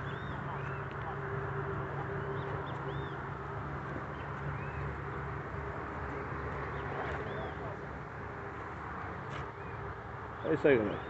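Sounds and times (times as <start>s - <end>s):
small birds chirping: 9.6s - 11.0s.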